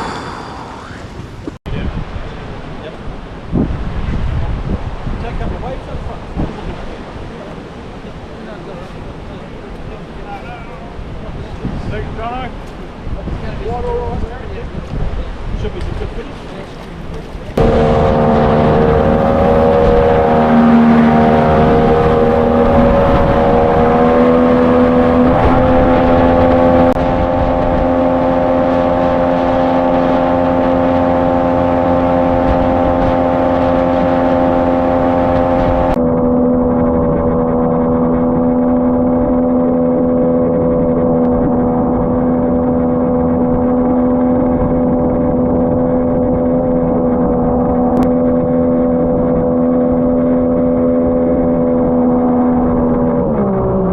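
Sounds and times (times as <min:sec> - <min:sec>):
jet boat motor at high revs: 0:16.2 - 0:53.9.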